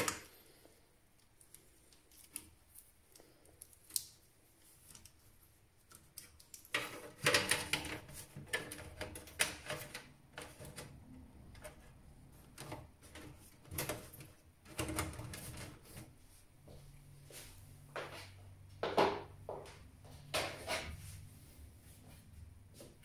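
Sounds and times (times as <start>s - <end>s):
hands working on metal case: 5.8s - 16.1s.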